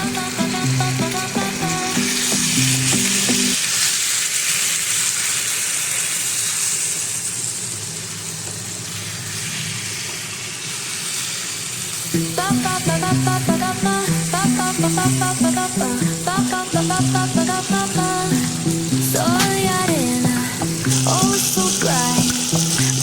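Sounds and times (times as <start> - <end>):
background music: 0.0 - 3.6, 12.2 - 23.0
food sizzling in hot oil: 0.0 - 23.0.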